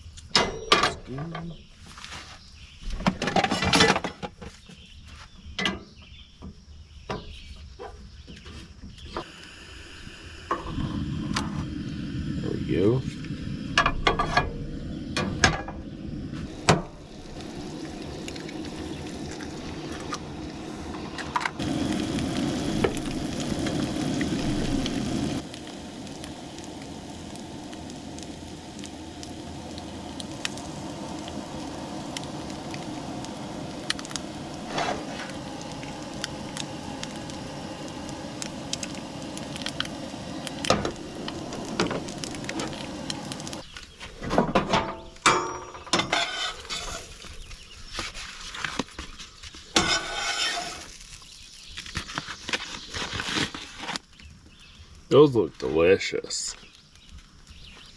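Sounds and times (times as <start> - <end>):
eggs sizzling in a pan: 8.9 - 44.0, 45.1 - 57.9
pan and utensil clatter: 44.4 - 47.1, 49.7 - 50.9.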